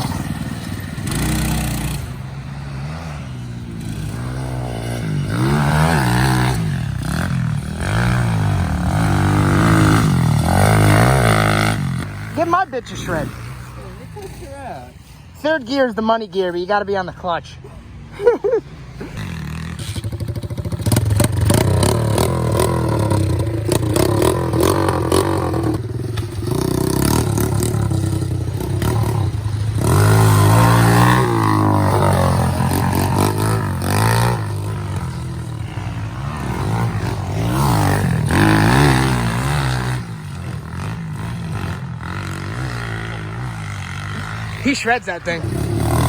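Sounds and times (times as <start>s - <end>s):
pit bike engine revving: 0.0s - 46.0s.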